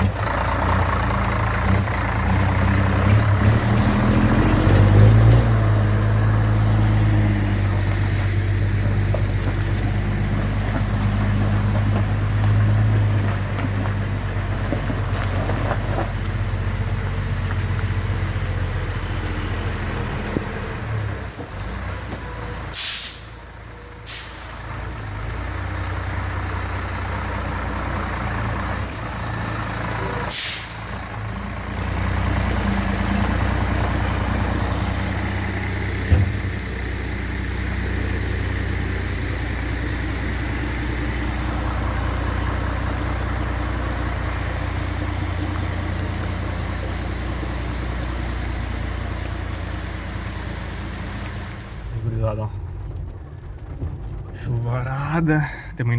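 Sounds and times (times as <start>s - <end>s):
truck diesel engine running: 0.0s - 55.9s
air brake hissing: 22.7s - 23.4s, 24.0s - 24.6s, 30.3s - 31.0s.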